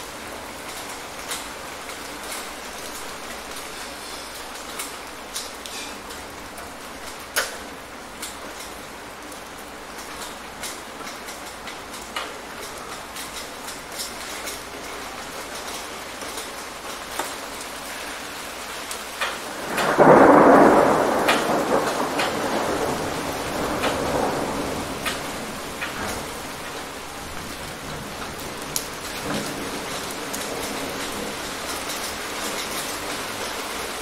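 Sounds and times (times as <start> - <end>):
raindrops tapping on a surface: 0.0 - 34.0
steady rain: 0.0 - 34.0
thunder clap: 19.2 - 33.5.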